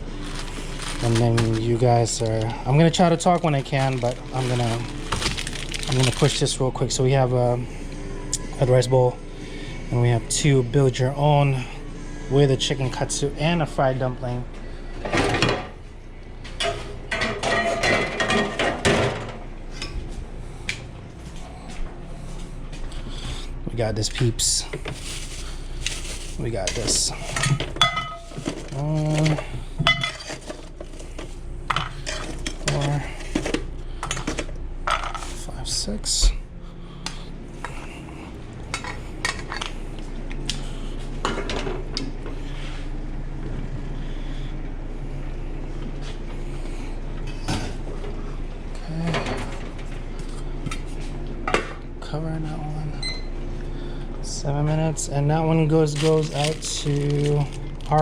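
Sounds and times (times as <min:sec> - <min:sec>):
steady low hum: 0:00.0 - 0:58.0
kitchenware rattle: 0:16.6 - 0:19.4
dishes and utensils clinking: 0:16.6 - 0:20.0, 0:26.6 - 0:35.3.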